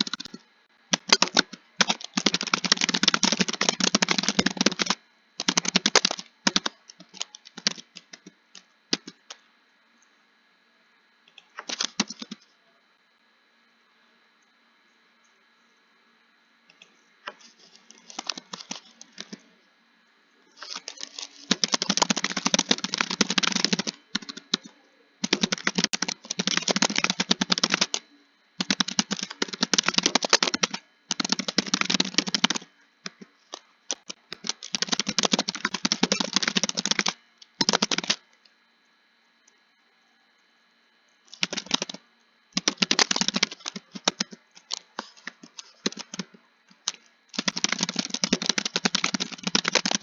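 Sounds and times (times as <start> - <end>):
fast typing on keyboard: 0.0 - 9.3, 11.6 - 12.4, 18.0 - 19.4, 20.6 - 28.0, 28.6 - 33.2, 33.9 - 38.2, 41.3 - 42.0, 42.6 - 50.0.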